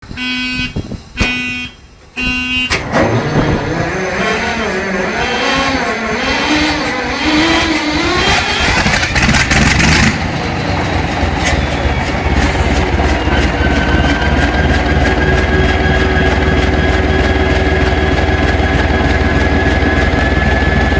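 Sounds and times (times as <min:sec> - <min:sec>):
diesel engine running: 0:00.0 - 0:20.9
short beeps: 0:00.1 - 0:02.8.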